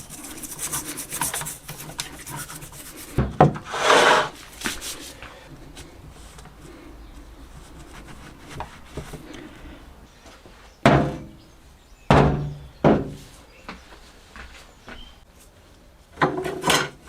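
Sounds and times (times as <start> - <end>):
faint scraping: 3.6 - 5.2.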